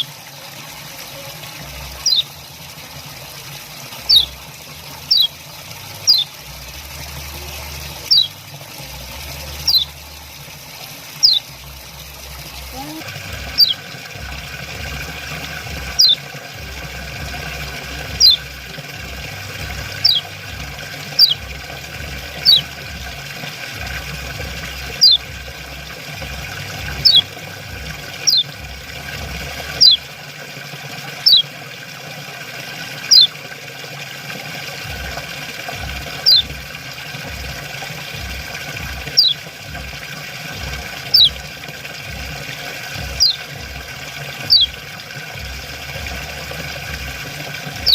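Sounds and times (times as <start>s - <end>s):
running water hiss: 0.0s - 47.9s
bird call sliding downward: 2.0s - 2.3s, 5.1s - 5.3s, 6.1s - 6.3s, 8.1s - 8.3s, 9.7s - 9.9s, 11.2s - 11.4s, 13.6s - 13.8s, 16.0s - 16.2s, 20.0s - 20.3s, 22.4s - 22.7s, 25.0s - 25.2s, 28.2s - 28.5s, 29.8s - 30.0s, 31.2s - 31.4s, 33.1s - 33.3s, 36.2s - 36.4s, 39.2s - 39.4s, 41.1s - 41.3s, 43.2s - 43.4s, 44.5s - 44.7s.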